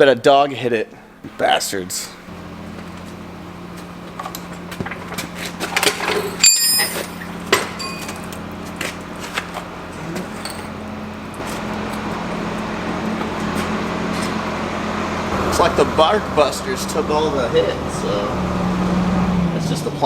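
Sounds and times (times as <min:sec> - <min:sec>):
low engine hum: 0:00.9 - 0:20.0
handling knocks and clicks: 0:03.8 - 0:10.8
high ringing: 0:06.1 - 0:08.5.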